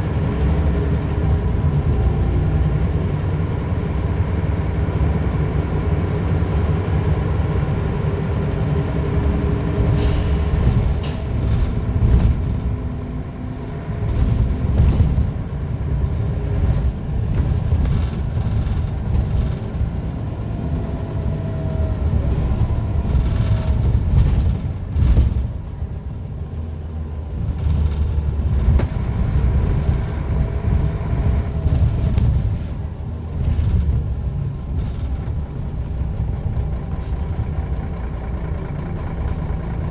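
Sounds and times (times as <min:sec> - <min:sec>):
bus diesel engine running: 0:00.0 - 0:39.9
air brake hiss: 0:10.0 - 0:11.4.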